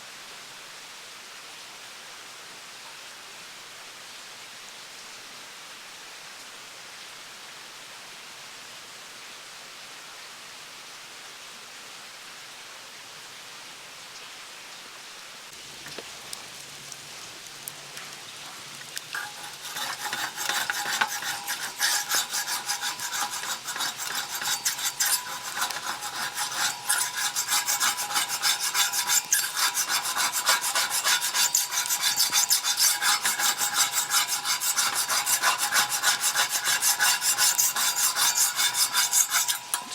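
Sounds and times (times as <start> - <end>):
steady hiss: 14.1 - 39.9
metal spatulas scraping griddle: 19.2 - 39.9.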